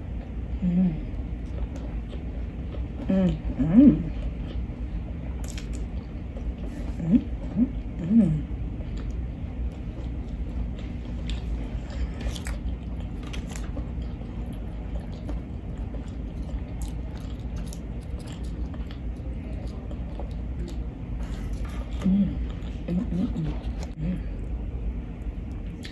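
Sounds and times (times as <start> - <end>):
person chewing with mouth clicks: 1.4 - 4.6, 8.8 - 24.6, 25.4 - 25.9.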